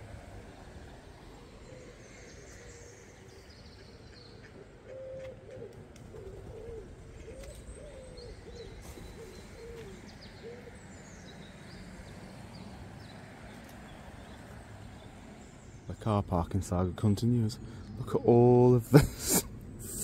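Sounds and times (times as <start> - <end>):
high chirps of small birds: 0.4 - 5.3, 7.2 - 20.0
low bird call: 0.6 - 12.0.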